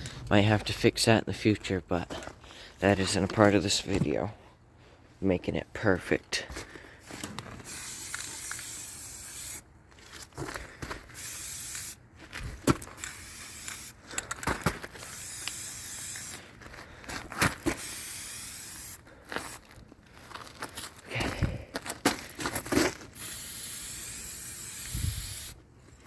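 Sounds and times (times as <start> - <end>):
spray paint can hissing: 7.6 - 9.6, 11.1 - 12.0, 13.0 - 14.0, 15.0 - 16.4, 17.7 - 19.6, 23.1 - 25.6.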